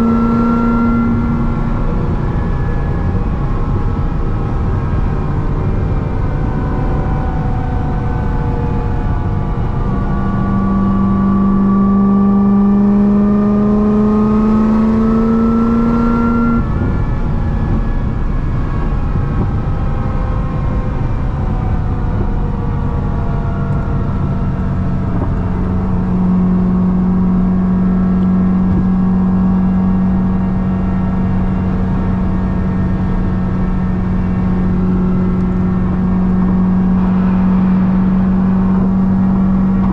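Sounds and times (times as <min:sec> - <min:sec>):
car engine accelerating: 0:00.0 - 0:39.9
supercharger whine: 0:00.0 - 0:39.9.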